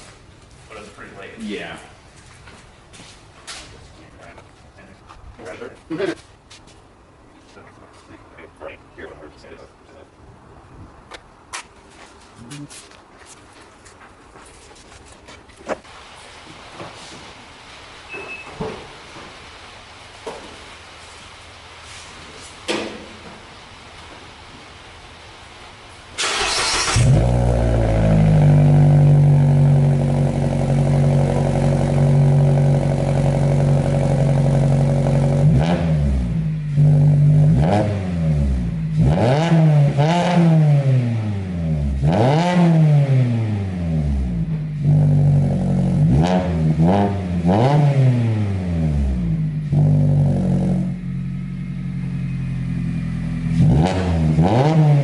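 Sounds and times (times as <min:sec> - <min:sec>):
car engine starting and idling: 0:18.8 - 0:55.0
car engine revving: 0:26.2 - 0:55.0.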